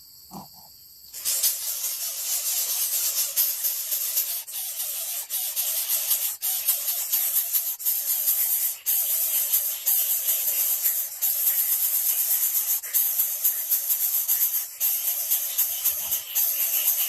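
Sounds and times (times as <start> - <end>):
bird chick hissing harshly: 1.1 - 17.0.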